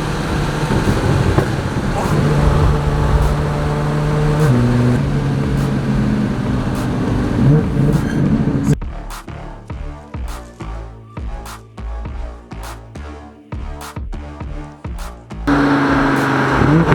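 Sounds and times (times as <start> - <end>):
car engine running: 0.0 - 8.8, 15.5 - 16.9.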